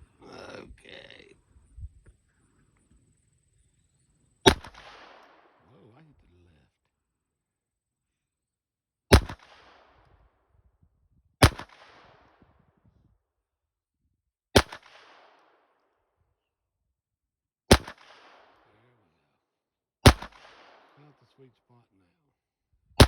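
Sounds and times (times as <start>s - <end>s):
pistol shots with echo: 4.4s - 5.7s, 9.1s - 10.1s, 11.4s - 12.4s, 14.6s - 15.8s, 17.7s - 18.8s, 20.0s - 21.3s.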